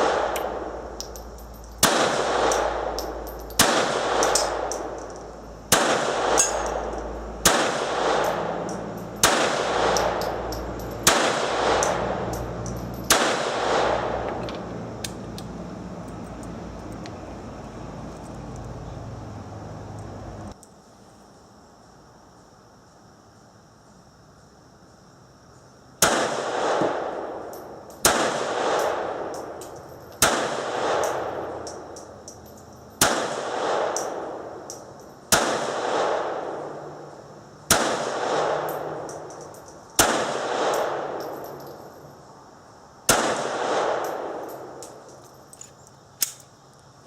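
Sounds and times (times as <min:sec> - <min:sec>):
pistol shots echoing: 0:00.0 - 0:00.8, 0:01.8 - 0:05.1, 0:05.7 - 0:14.3, 0:26.0 - 0:27.4, 0:28.0 - 0:29.4, 0:30.2 - 0:31.8, 0:33.0 - 0:34.7, 0:35.3 - 0:36.8, 0:37.7 - 0:39.4, 0:40.0 - 0:41.4, 0:43.1 - 0:44.8.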